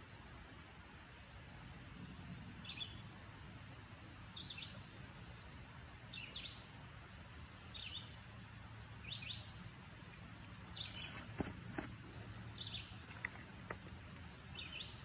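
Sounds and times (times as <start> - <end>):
songbird chirping: 9.0 - 15.0.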